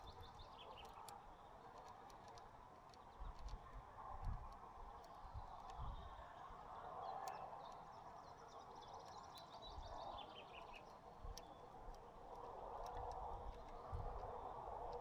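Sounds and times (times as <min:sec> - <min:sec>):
sharp ticks: 0:00.0 - 0:03.6, 0:07.1 - 0:07.9, 0:10.6 - 0:15.0
songbirds twittering chirps: 0:00.0 - 0:15.0.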